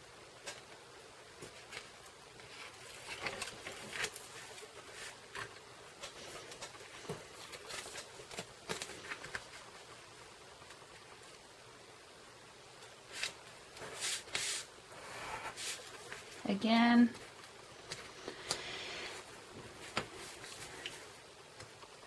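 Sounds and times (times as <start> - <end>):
paper rustling and crinkling: 1.4 - 10.1, 13.1 - 16.4, 17.1 - 21.2.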